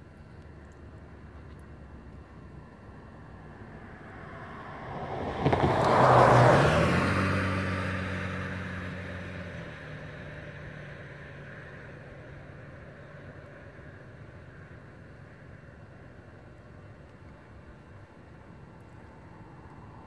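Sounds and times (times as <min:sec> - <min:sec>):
vehicle passing by: 0:03.2 - 0:12.8.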